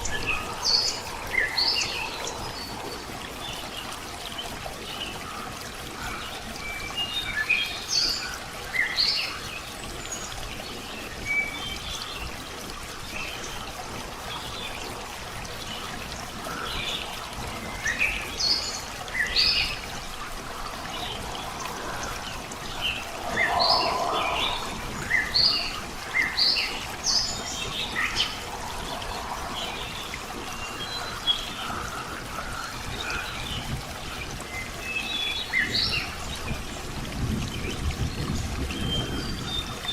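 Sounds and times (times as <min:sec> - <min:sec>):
trickling water: 0:00.0 - 0:39.9
songbirds chirping: 0:13.2 - 0:36.2.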